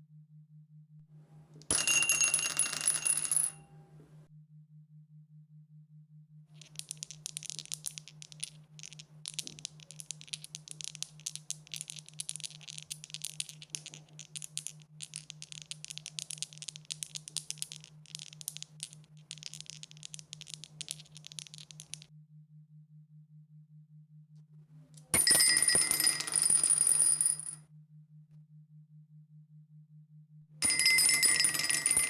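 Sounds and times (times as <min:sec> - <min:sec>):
dice rattling: 0:01.7 - 0:03.5, 0:06.6 - 0:22.1.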